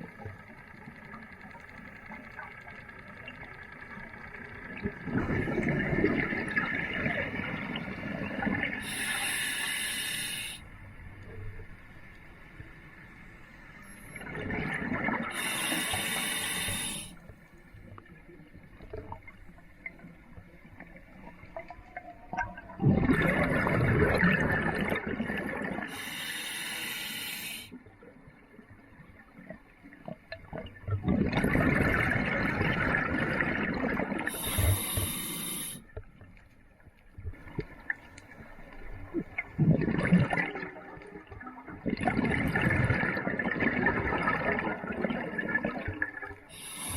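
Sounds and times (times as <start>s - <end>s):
exhaled bubbles rushing: 4.8s - 8.8s, 14.2s - 15.4s, 22.3s - 25.9s, 30.5s - 34.5s, 39.1s - 41.0s, 41.7s - 46.4s
regulator hissing inhale: 8.8s - 10.7s, 15.3s - 17.2s, 25.9s - 27.8s, 34.3s - 35.9s, 46.5s - 46.9s.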